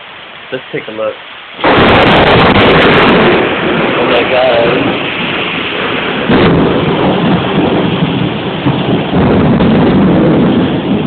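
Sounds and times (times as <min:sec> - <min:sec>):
heavy rain: 0:00.0 - 0:11.0
loud thunder crack: 0:01.6 - 0:11.0
thunder rumbling: 0:01.6 - 0:11.0.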